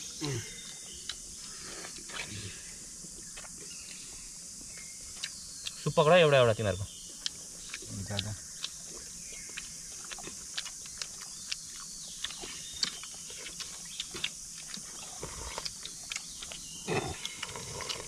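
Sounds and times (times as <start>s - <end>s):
steady high hiss: 0.0s - 8.4s
wet chewing and smacking: 0.5s - 5.9s, 6.9s - 18.0s.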